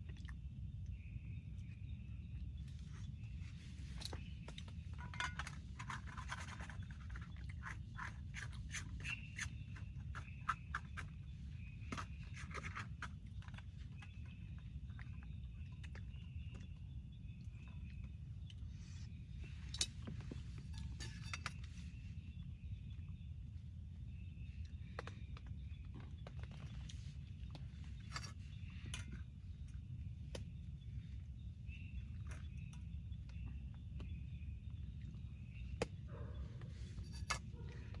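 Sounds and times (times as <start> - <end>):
objects scraping and clicking: 4.0 - 11.2.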